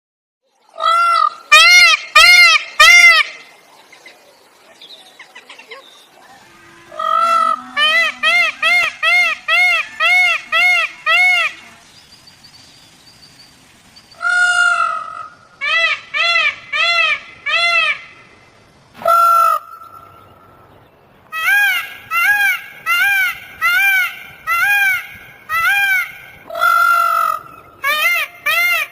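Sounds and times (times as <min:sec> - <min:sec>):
peacock honking calls: 0:00.8 - 0:03.5, 0:05.5 - 0:12.0, 0:14.2 - 0:18.3, 0:19.0 - 0:20.6, 0:21.3 - 0:28.9.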